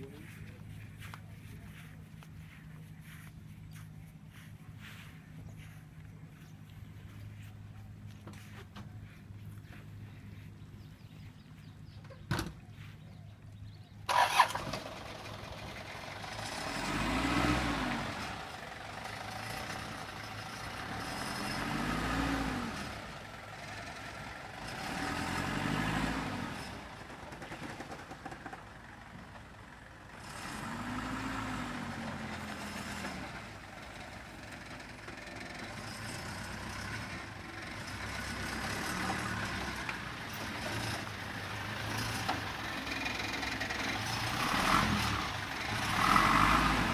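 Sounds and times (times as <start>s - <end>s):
vehicle engine revving: 14.1s - 29.0s, 30.1s - 46.9s.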